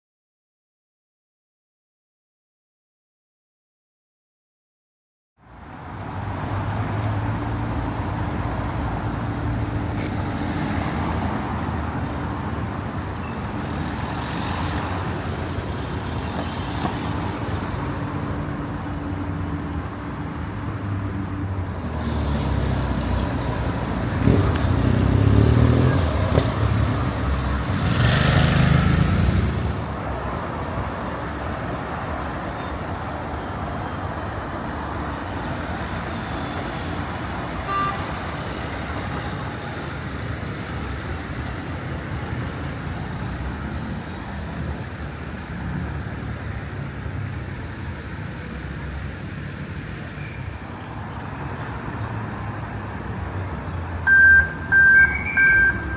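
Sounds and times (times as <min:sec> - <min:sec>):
loud vehicles passing: 0:05.4 - 0:55.9
vehicle engines running: 0:18.1 - 0:31.4.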